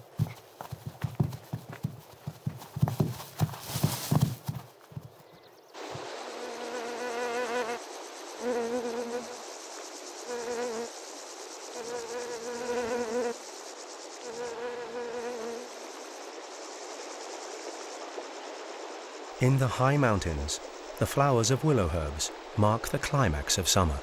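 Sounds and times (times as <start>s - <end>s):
fly buzzing: 0.0s - 7.8s, 8.4s - 9.4s, 10.3s - 10.9s, 11.8s - 13.4s, 14.2s - 15.7s
crickets chirping: 0.0s - 24.0s.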